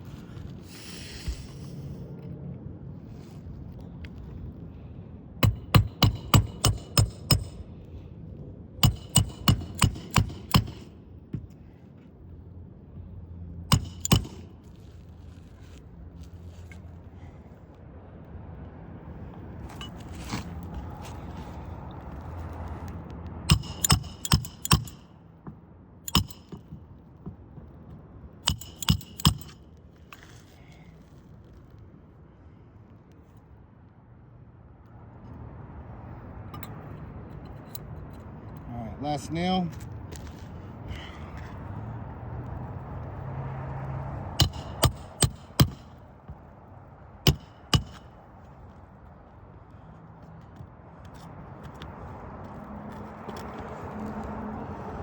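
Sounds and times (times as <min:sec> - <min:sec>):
hammer striking nails: 0:05.4 - 0:07.6, 0:08.8 - 0:11.6, 0:13.7 - 0:14.8, 0:23.5 - 0:27.7, 0:28.4 - 0:29.6, 0:44.3 - 0:46.4, 0:47.2 - 0:48.2.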